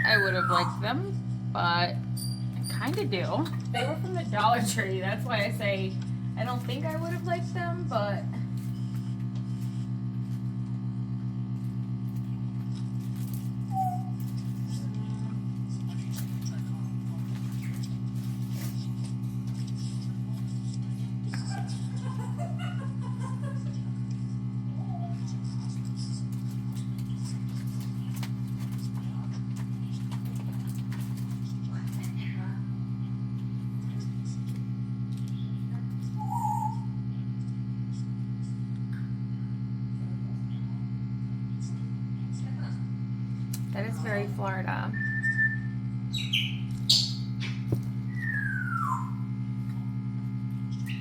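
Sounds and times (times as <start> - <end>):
parrot squawking: 0.0 - 1.1, 13.7 - 14.2, 36.2 - 37.0, 45.0 - 49.3
vacuum pump humming: 0.0 - 51.0
parrot whistle falling in pitch: 48.1 - 49.2.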